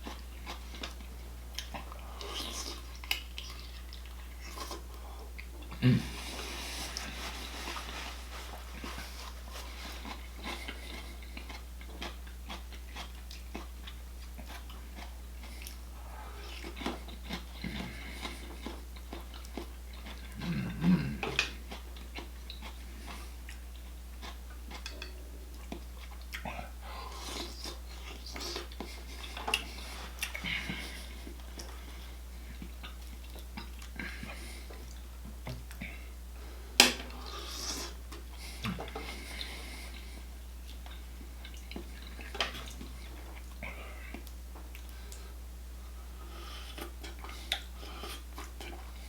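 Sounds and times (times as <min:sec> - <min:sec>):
chewing and biting food: 0:00.0 - 0:36.0
steady low hum: 0:00.0 - 0:49.0.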